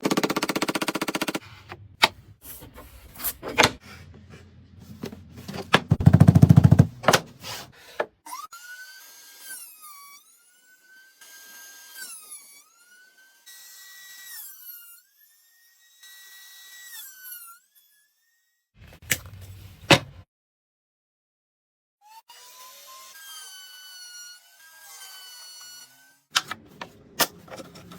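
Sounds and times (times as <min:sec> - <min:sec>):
knocks and clicks: 0:05.0 - 0:07.4.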